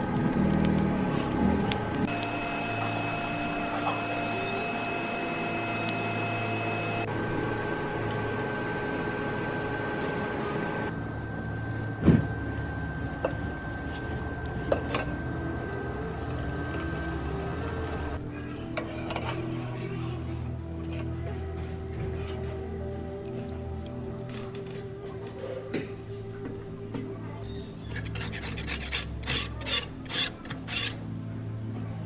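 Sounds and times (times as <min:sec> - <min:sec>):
mechanical hum: 0:00.0 - 0:32.0.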